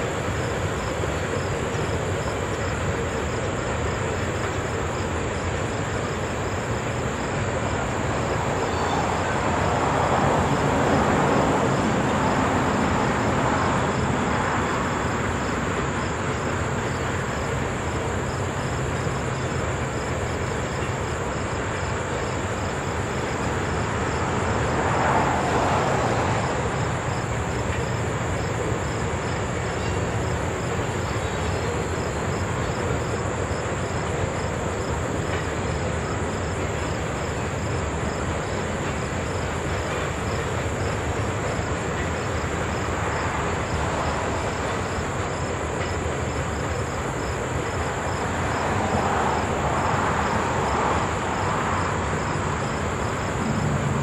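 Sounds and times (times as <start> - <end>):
train cars rumbling over rails: 0.0 - 54.0.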